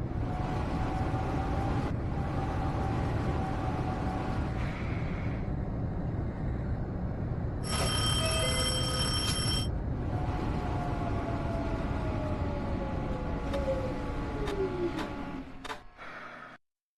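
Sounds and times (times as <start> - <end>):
train rumbling: 0.0 - 16.1
electronic warning tone: 7.6 - 9.7.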